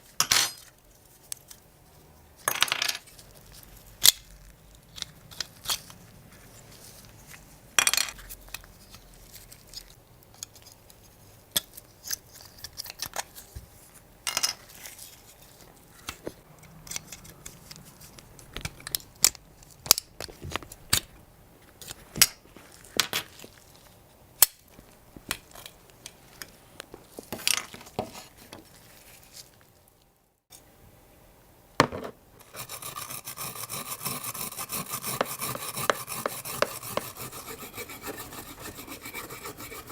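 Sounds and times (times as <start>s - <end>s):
fast rasping: 32.4s - 39.9s.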